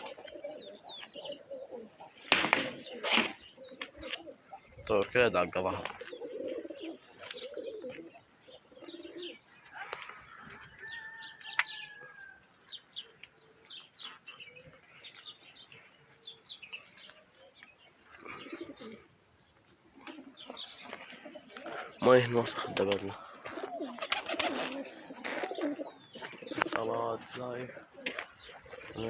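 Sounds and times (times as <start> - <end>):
pigeons cooing: 0.0 - 29.0
wing flaps: 23.6 - 25.6.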